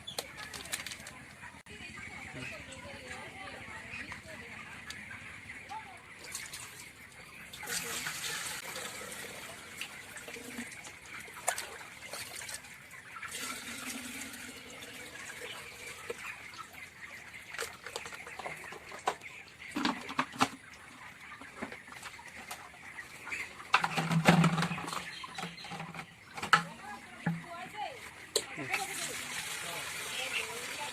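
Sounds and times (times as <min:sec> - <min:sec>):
chickens: 0:00.0 - 0:30.9
water sloshing: 0:07.5 - 0:16.2.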